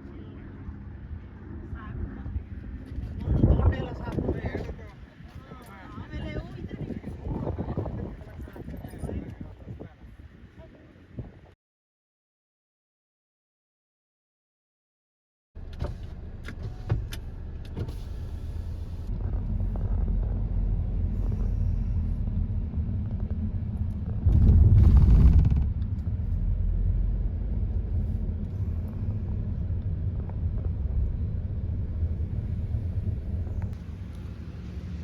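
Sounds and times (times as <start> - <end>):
car engine and road rumble: 15.6 - 35.0.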